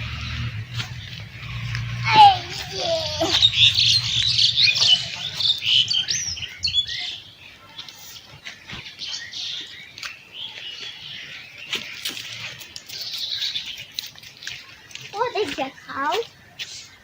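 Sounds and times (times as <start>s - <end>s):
small birds chirping and twittering: 0.0s - 17.0s.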